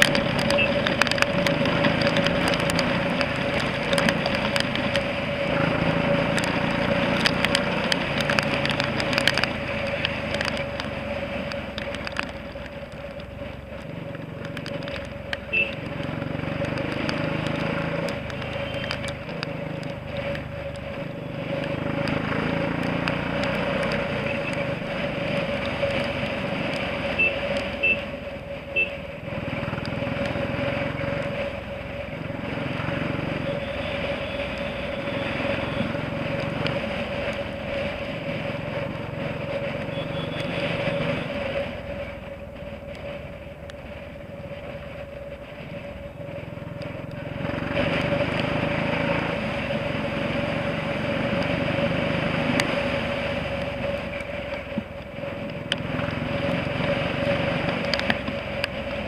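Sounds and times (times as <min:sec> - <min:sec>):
motorcycle engine running: 0:00.0 - 0:59.0
road and wind noise: 0:00.0 - 0:59.0
horn beeps: 0:15.5 - 0:15.8, 0:27.1 - 0:28.1, 0:28.7 - 0:29.0, 0:39.9 - 0:40.6.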